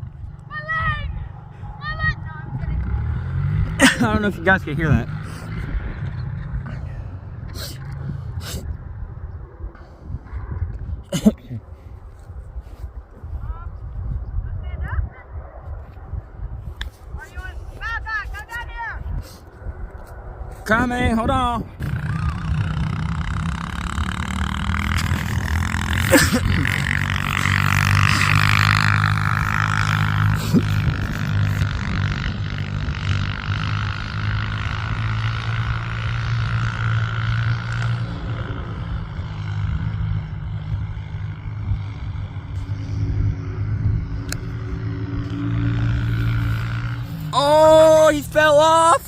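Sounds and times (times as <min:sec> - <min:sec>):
dirt bike engine running: 0:00.0 - 0:08.4, 0:20.1 - 0:49.0.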